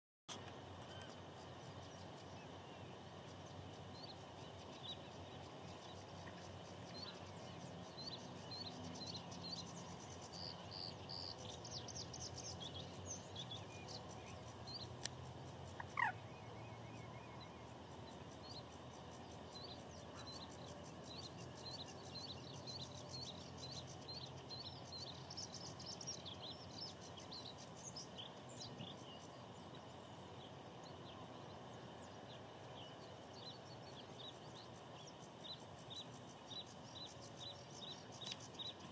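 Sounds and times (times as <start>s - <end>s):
outdoor background hiss: 0.3s - 38.9s
bird chirping and trilling: 15.7s - 17.6s.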